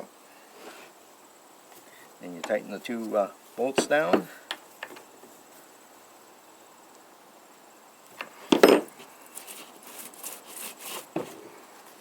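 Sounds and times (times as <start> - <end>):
tool scraping and rasping: 9.4 - 11.2.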